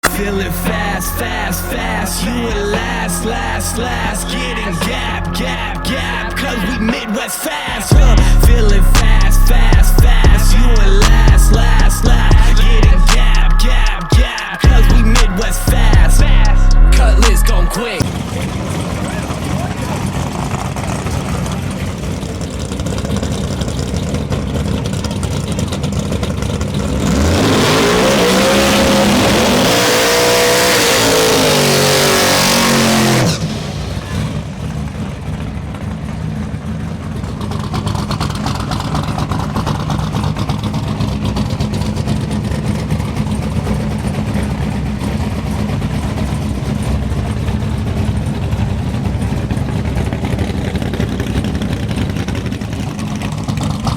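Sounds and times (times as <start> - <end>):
drag racing engine rumbling: 0.0 - 53.9
engine revving at full throttle: 7.9 - 34.9.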